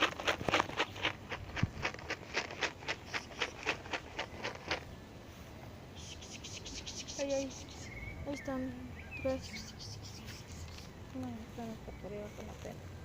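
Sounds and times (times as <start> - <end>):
brisk footsteps outdoors: 0.0 - 5.8.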